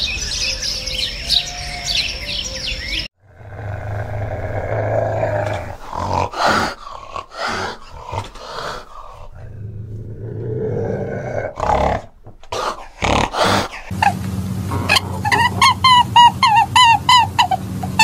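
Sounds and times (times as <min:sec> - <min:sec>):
cat giving harsh throaty calls: 0:03.2 - 0:09.6, 0:10.6 - 0:14.2
steady low hum: 0:13.6 - 0:18.0.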